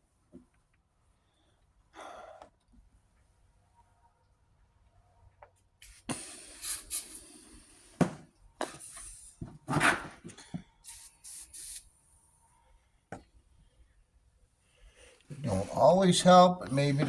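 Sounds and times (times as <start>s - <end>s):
aerosol spray hissing: 5.8s - 8.0s, 10.8s - 11.9s.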